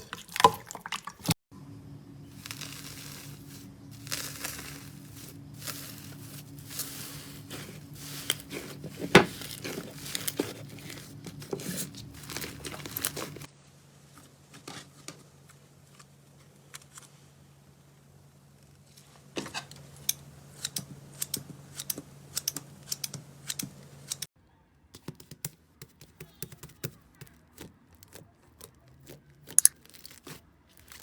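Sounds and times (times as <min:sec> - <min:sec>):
slime crackling being squeezed: 0:02.4 - 0:07.1, 0:28.0 - 0:31.0.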